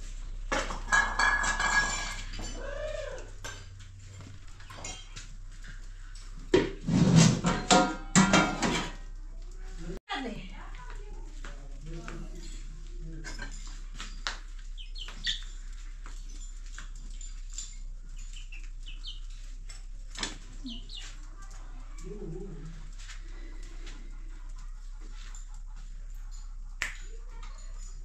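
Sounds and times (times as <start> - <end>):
high bird chirps: 14.8 - 15.6, 18.1 - 19.4, 20.6 - 21.2.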